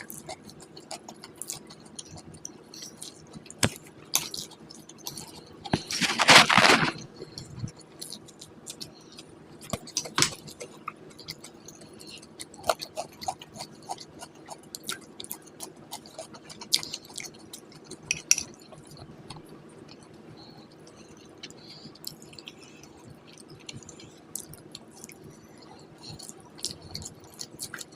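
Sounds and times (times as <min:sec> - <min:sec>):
chewing with mouth clicks: 0:00.0 - 0:27.9.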